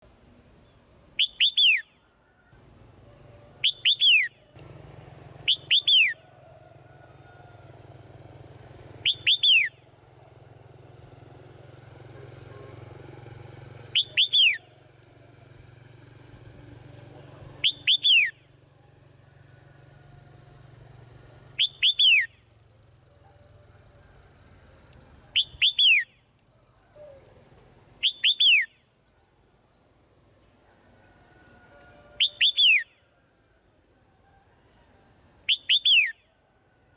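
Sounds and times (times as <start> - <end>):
swallow chirping: 5.4 - 6.2, 13.9 - 14.8, 17.6 - 18.4.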